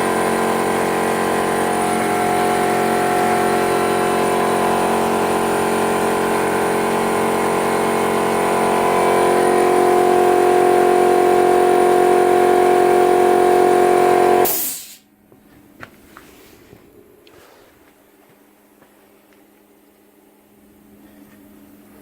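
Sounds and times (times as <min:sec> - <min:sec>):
plasma cutter arc buzzing: 0:13.2 - 0:15.0.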